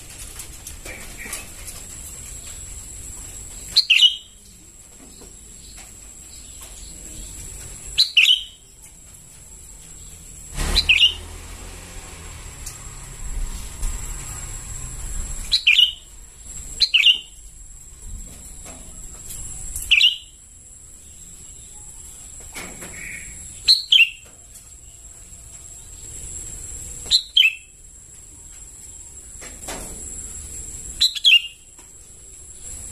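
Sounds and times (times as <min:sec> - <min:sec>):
bird chirping: 0:03.5 - 0:11.4, 0:15.4 - 0:17.4, 0:19.2 - 0:20.4, 0:21.0 - 0:24.4, 0:25.8 - 0:27.8, 0:31.0 - 0:31.7.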